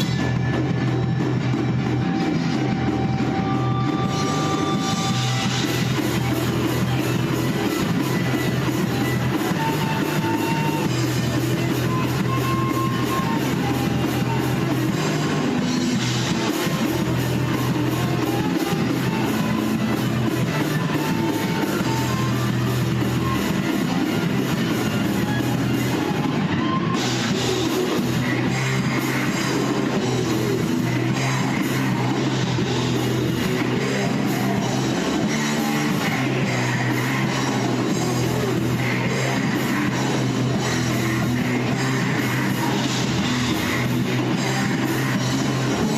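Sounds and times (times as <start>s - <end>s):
bass guitar: 0.0s - 45.9s
drum kit with cymbals: 0.0s - 45.9s
electric guitars: 0.0s - 45.9s.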